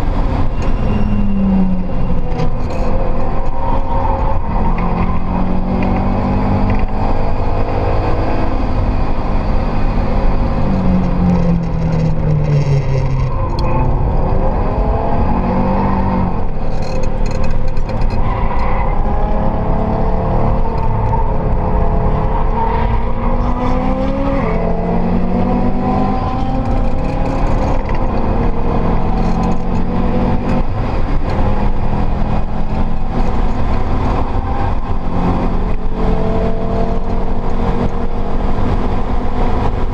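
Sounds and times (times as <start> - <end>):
car engine revving: 0.0 - 39.9
road and wind noise: 0.0 - 39.9.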